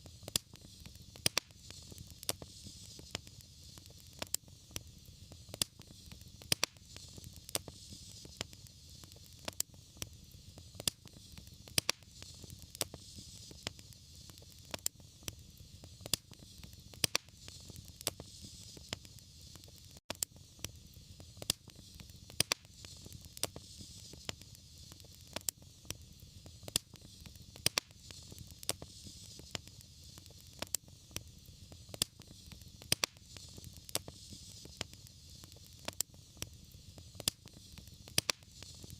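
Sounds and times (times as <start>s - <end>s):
fire crackling and popping: 0.0s - 38.9s
fire hiss and low rumble: 0.0s - 38.9s.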